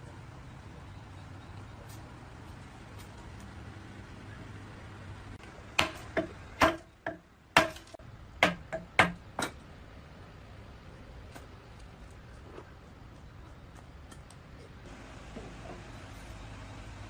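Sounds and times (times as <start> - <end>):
sharp knocks of hard objects: 5.7 - 9.6.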